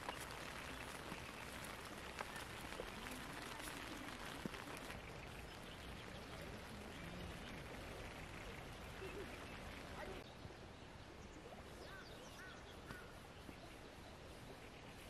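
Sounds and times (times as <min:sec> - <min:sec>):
raindrop taps: 0:00.0 - 0:10.2
rain on a tent: 0:00.0 - 0:10.3.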